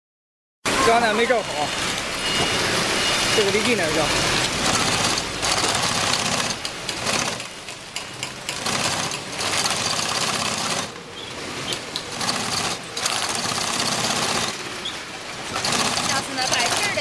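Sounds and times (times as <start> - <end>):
sewing machine stitching: 4.4 - 7.5, 8.5 - 11.0, 12.0 - 14.6, 15.5 - 17.0.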